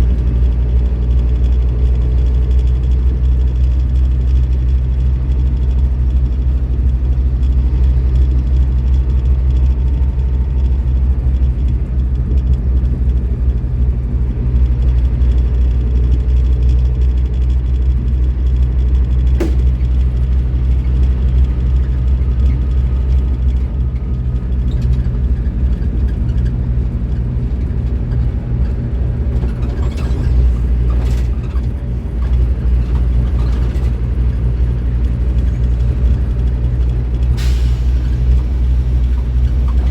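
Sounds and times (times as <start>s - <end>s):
bus diesel engine running: 0.0s - 39.9s
sharp click: 19.4s - 20.0s.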